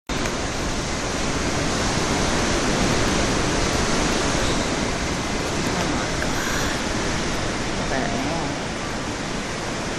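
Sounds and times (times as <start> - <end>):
heavy rain: 0.1 - 9.9
strong wind: 0.1 - 9.9.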